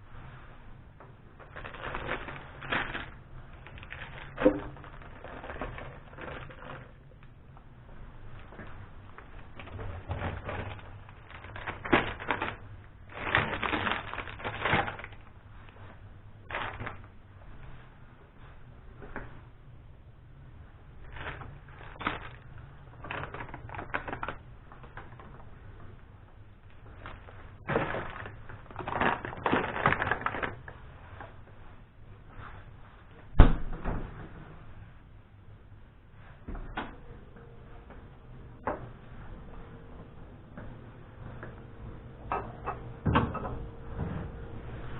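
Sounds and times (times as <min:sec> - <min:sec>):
packaging crinkling: 0:01.4 - 0:07.4, 0:08.3 - 0:17.2, 0:21.0 - 0:25.5, 0:26.6 - 0:30.8
items knocking in a refrigerator: 0:08.5 - 0:15.2, 0:27.6 - 0:30.6, 0:42.3 - 0:44.4.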